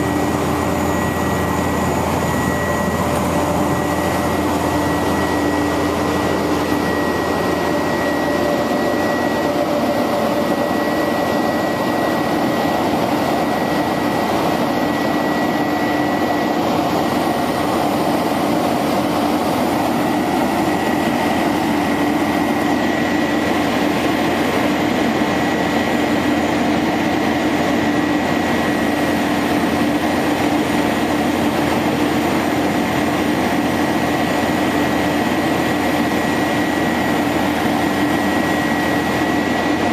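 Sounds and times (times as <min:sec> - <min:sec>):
truck engine running: 0:00.0 - 0:10.7
high mechanical whine: 0:00.0 - 0:39.9.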